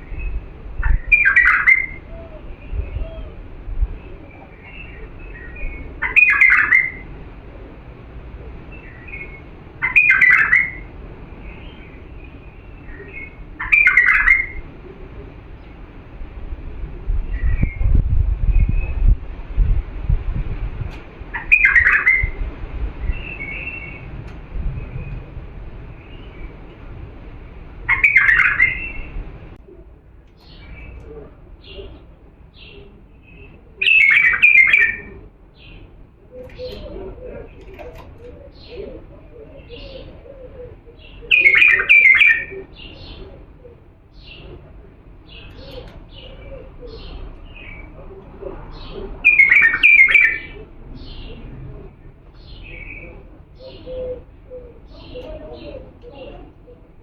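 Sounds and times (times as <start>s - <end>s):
bulbul singing warbled phrases: 0.0s - 7.4s, 8.5s - 15.8s, 27.8s - 29.4s, 30.4s - 57.0s.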